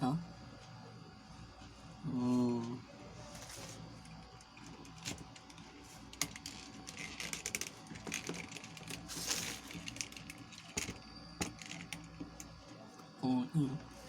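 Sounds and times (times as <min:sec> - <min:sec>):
packaging rustling: 0:04.6 - 0:12.0
plastic toys clicking: 0:04.6 - 0:12.1.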